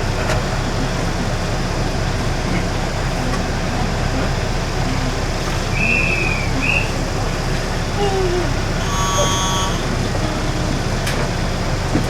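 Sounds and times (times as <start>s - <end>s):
railcar engine hum: 0.0s - 12.0s
brief high tone: 8.0s - 10.4s.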